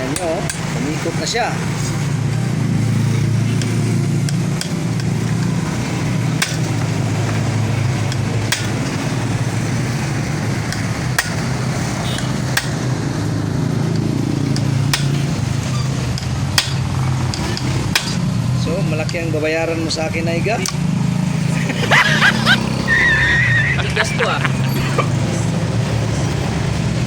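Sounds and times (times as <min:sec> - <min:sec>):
sharp metal tool clicks: 0:00.2 - 0:00.7, 0:03.6 - 0:05.6, 0:06.4 - 0:06.7, 0:08.1 - 0:08.9, 0:10.7 - 0:11.5, 0:12.2 - 0:12.9, 0:13.9 - 0:15.3, 0:16.1 - 0:18.3.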